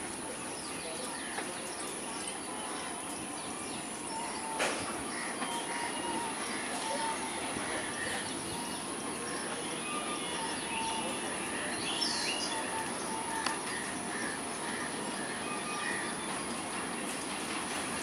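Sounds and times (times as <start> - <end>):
birds chirping: 0.0 - 18.0
outdoor background noise: 0.0 - 18.0.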